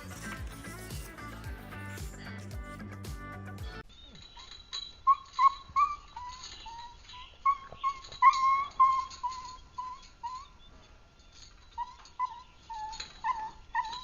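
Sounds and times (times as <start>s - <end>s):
dog whining: 4.0s - 14.0s.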